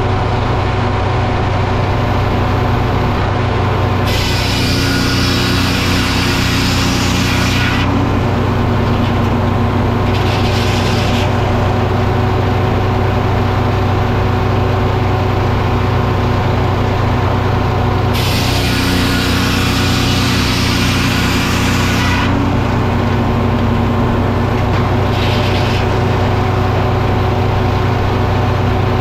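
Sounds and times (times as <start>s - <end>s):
sawmill engine drone: 0.0s - 29.0s.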